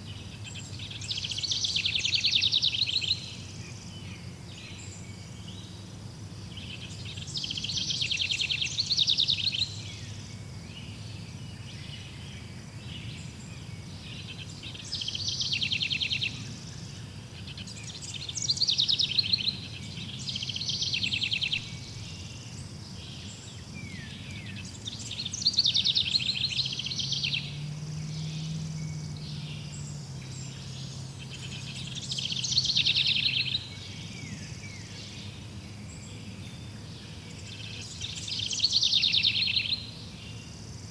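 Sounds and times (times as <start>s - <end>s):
songbird trilling: 0.1s - 5.9s, 6.5s - 12.2s, 12.9s - 40.9s.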